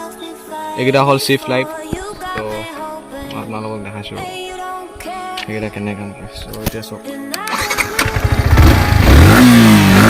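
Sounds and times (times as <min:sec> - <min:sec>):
background music: 0:00.0 - 0:10.0
motorcycle engine starting: 0:07.4 - 0:10.0.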